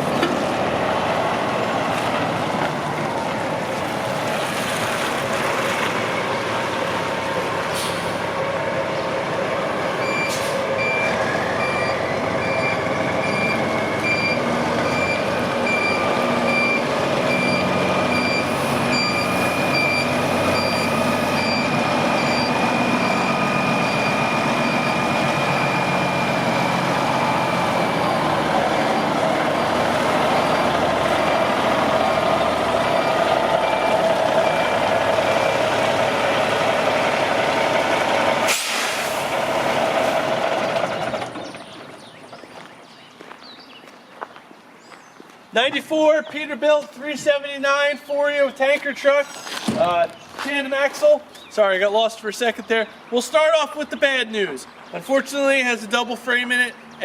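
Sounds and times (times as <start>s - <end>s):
diesel truck engine running: 0.0s - 42.5s
reversing alarm beeping: 10.0s - 28.2s, 33.0s - 35.8s.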